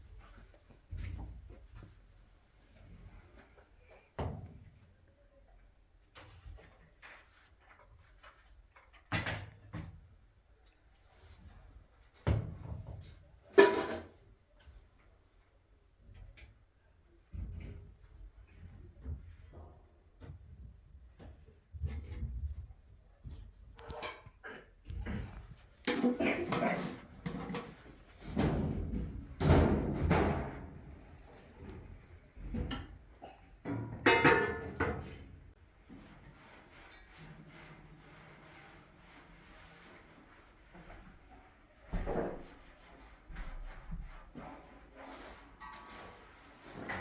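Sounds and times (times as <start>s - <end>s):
objects knocking and clattering: 13.5s - 14.2s, 25.0s - 30.9s, 32.4s - 35.4s.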